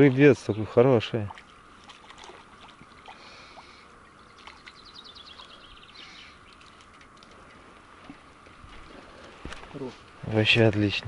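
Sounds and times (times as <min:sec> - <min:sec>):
outdoor background noise: 0:00.0 - 0:11.0
songbird trilling: 0:02.9 - 0:06.6
faint ticks: 0:06.4 - 0:08.8.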